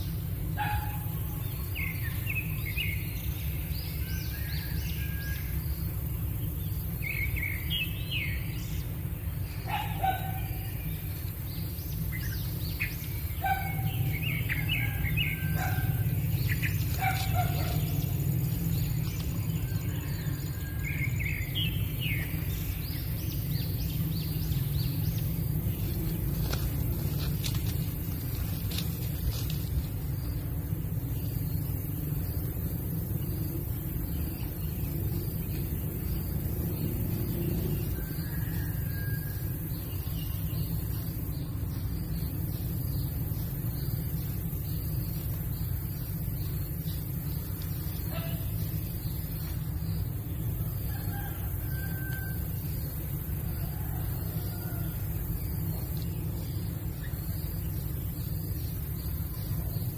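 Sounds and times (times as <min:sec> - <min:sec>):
birds chirping and calling: 0:00.0 - 0:59.9
constant high hiss: 0:00.0 - 0:59.9
steady low rumble: 0:00.0 - 0:59.9.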